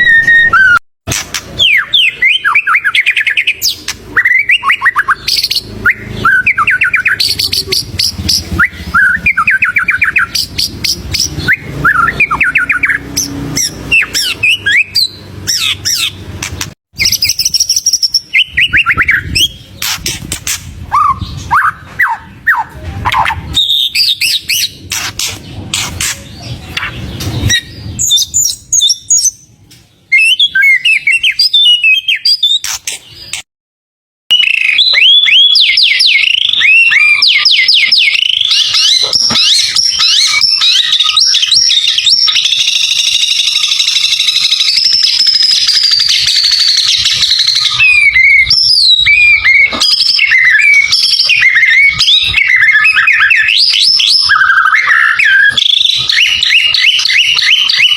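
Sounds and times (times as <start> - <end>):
bird singing whistled phrases: 0.0 - 0.8, 1.6 - 16.1, 30.1 - 32.6, 34.3 - 57.9.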